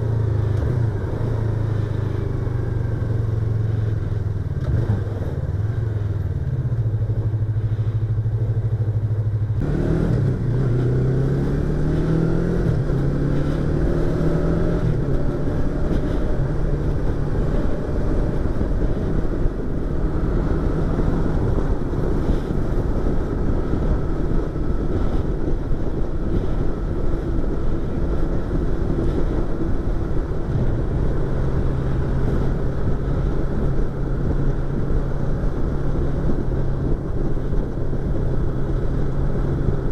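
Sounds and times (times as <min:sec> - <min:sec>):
motorcycle engine accelerating: 0:00.0 - 0:39.9
wind rush: 0:00.0 - 0:39.9.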